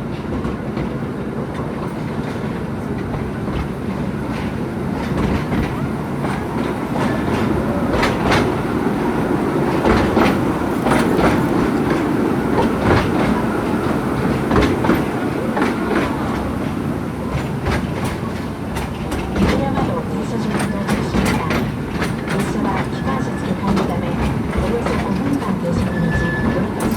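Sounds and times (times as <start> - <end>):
train rumbling: 0.0 - 26.9
wheels clicking over rail joints: 0.1 - 26.9.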